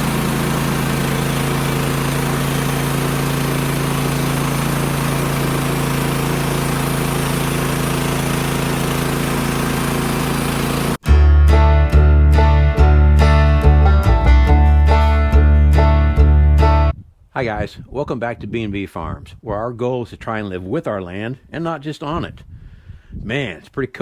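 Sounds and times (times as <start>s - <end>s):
engine humming steadily: 0.0s - 11.0s.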